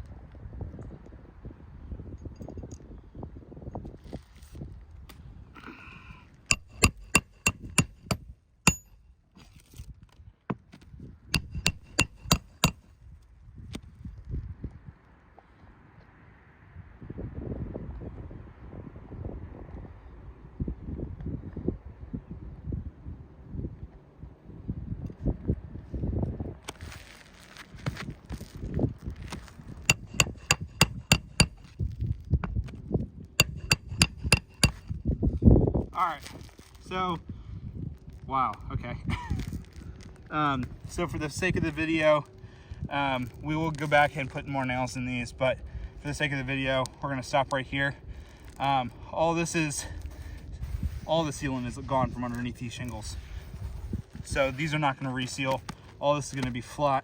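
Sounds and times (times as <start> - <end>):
hammer driving nails into shingles: 6.5 - 9.0, 11.4 - 12.8, 29.9 - 31.7, 33.4 - 35.0.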